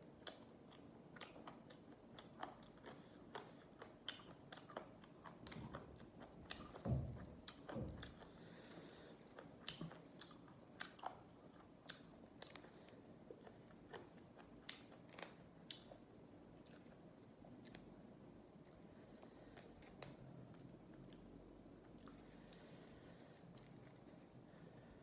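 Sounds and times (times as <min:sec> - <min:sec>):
chewing crunchy raw vegetables: 0:00.0 - 0:17.9.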